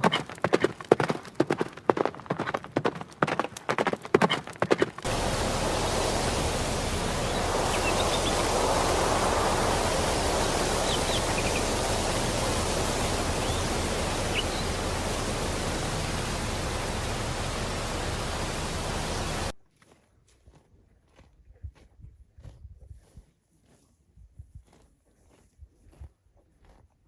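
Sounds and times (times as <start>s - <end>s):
steady rushing noise: 5.0s - 19.6s
faint high chirps: 5.1s - 19.5s.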